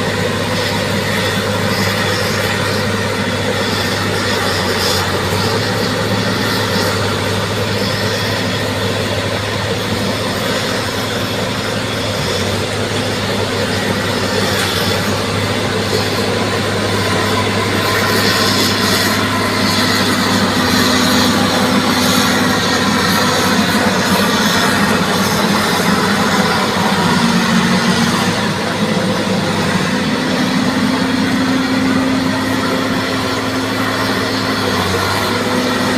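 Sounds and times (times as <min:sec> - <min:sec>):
bulldozer diesel engine running: 0:00.0 - 0:35.9.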